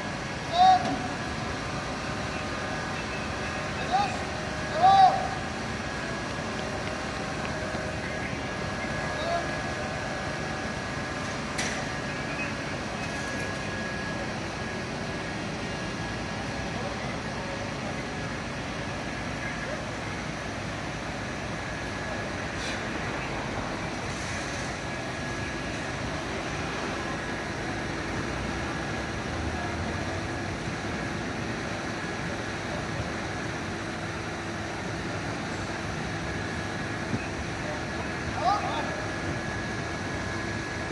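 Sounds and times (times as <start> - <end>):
street noise: 0.0 - 40.9
vehicle engine: 0.0 - 40.9.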